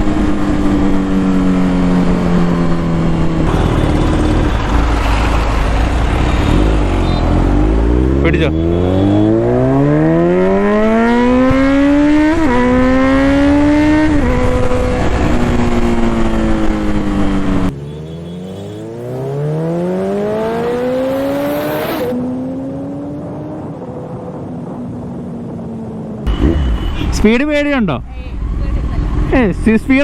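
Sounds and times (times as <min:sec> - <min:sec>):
motorcycle engine accelerating: 0:00.0 - 0:26.9
wind rush: 0:11.4 - 0:17.7.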